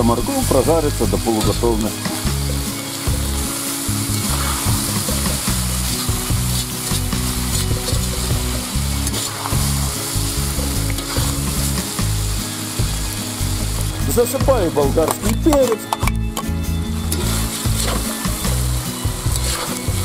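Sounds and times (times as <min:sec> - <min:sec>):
food sizzling in hot oil: 0:00.0 - 0:20.0
low steady tones: 0:00.0 - 0:20.0
metal spatula scraping pot: 0:04.0 - 0:09.9, 0:17.1 - 0:20.0.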